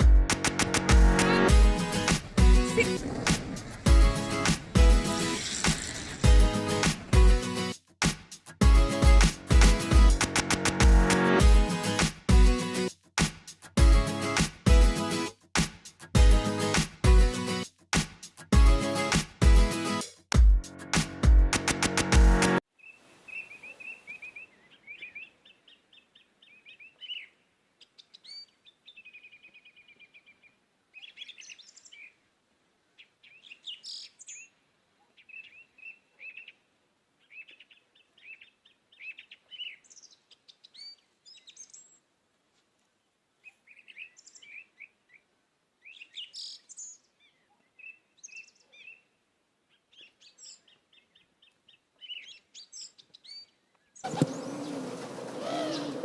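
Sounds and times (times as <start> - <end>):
small birds chirping: 1.2 - 7.0, 22.8 - 32.3, 32.9 - 42.1, 43.4 - 56.0.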